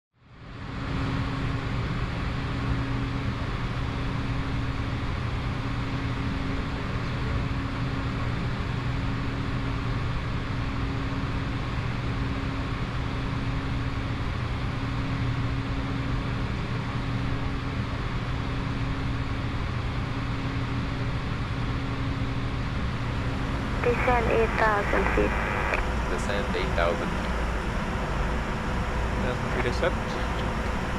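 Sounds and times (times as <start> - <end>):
low constant hum: 22.7 - 30.9
airflow rushing in jet cockpit: 29.2 - 30.9.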